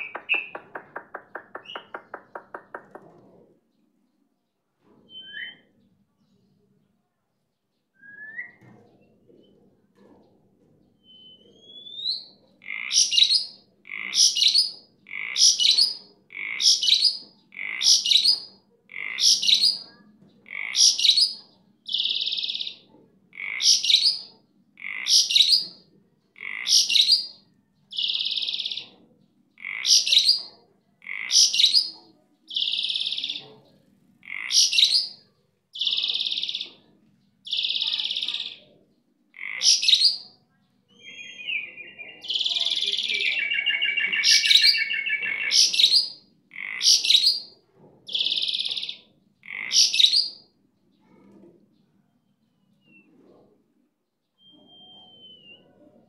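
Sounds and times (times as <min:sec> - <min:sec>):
starling singing: 0:00.0 - 0:02.8, 0:40.9 - 0:47.5.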